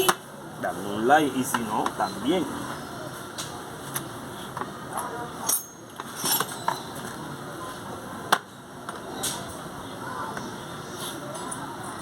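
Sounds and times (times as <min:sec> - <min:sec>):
metal tools clinking and knocking: 0:05.0 - 0:07.2.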